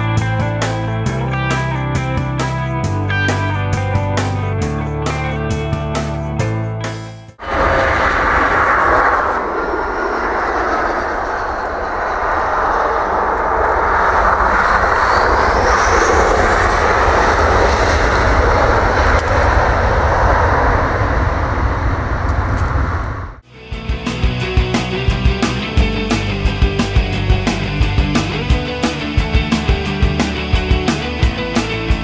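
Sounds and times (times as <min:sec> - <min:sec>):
faint rising whine: 0:07.4 - 0:23.4
jet engines at high power: 0:07.4 - 0:32.0.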